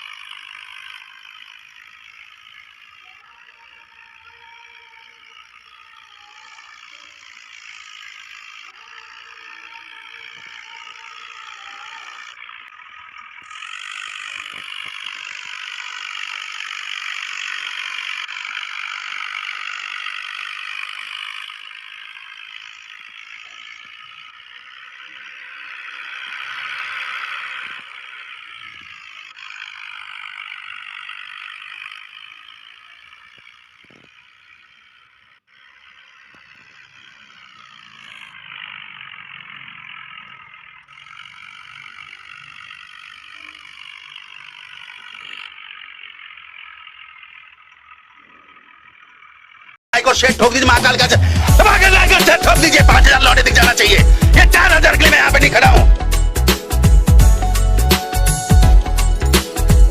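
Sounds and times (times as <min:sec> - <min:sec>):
tractor pulling a rattling harrow: 0:00.0 - 0:59.9.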